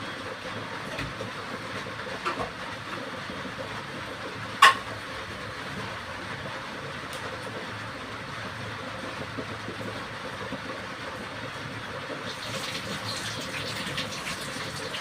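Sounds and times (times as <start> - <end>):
curry hissing in a pan: 12.3 - 15.0.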